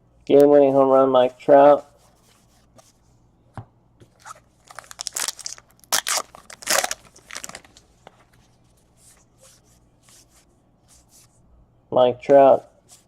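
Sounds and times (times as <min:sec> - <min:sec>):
wrapper crinkling and tearing: 0:04.6 - 0:07.9.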